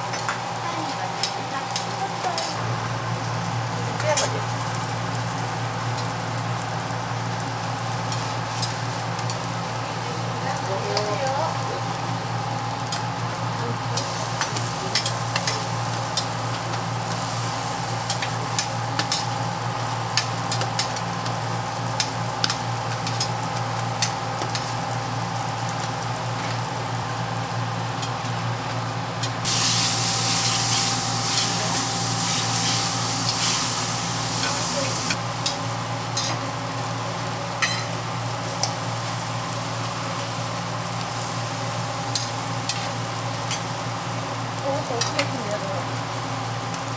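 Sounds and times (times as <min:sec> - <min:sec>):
pancakes sizzling on a griddle: 0:00.0 - 0:46.9
metal tongs clicking on griddle: 0:01.2 - 0:02.6, 0:04.0 - 0:04.3, 0:14.0 - 0:16.7, 0:18.0 - 0:19.4, 0:20.1 - 0:21.0, 0:22.0 - 0:23.3, 0:24.0 - 0:24.7, 0:36.2 - 0:36.4, 0:42.1 - 0:42.9, 0:44.9 - 0:45.4.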